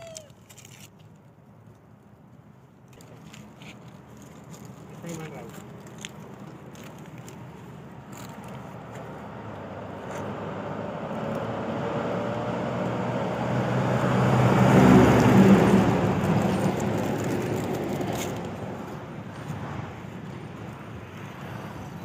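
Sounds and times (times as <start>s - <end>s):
vehicle passing by: 8.1s - 22.0s.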